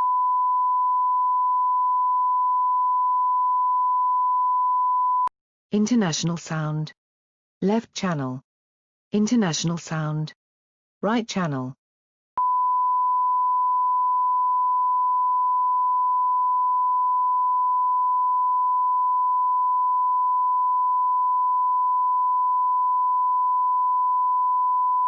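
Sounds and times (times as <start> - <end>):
sine-wave test tone: 0.0 - 5.3, 12.4 - 25.0.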